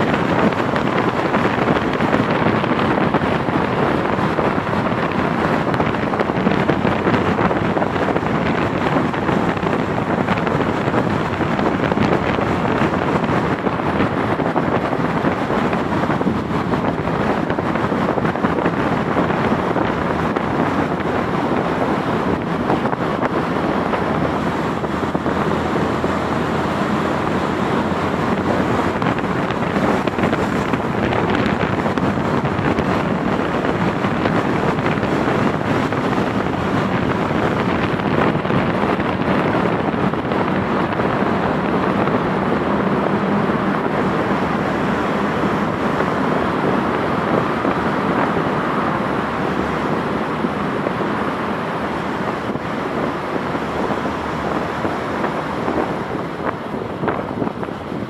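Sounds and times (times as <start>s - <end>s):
moving vehicle: 0.0s - 58.0s
wind on microphone: 0.0s - 58.0s.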